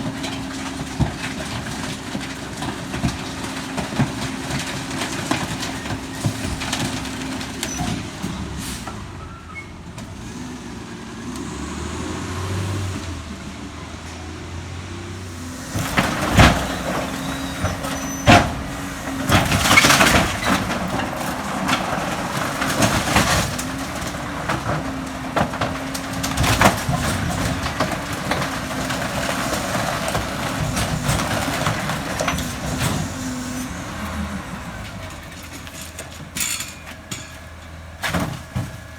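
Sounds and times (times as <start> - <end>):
packer crushing waste: 0.0 - 8.7, 15.2 - 38.9
garbage truck humming: 0.0 - 38.9
loud bangs and cracks: 15.3 - 33.4.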